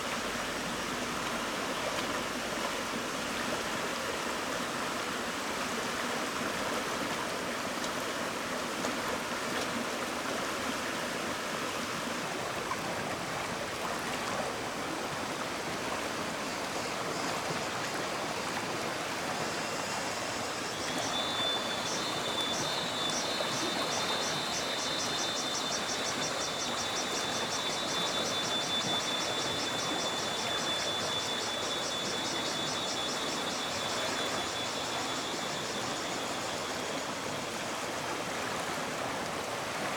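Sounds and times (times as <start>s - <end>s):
stream water rushing: 0.0s - 39.9s
high-pitched pulsing buzz: 19.0s - 37.6s.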